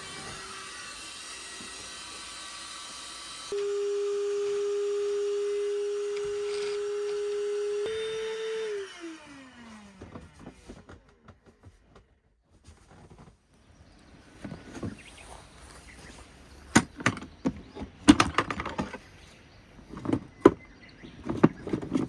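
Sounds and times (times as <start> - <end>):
small electric motor whine: 0.0 - 11.0.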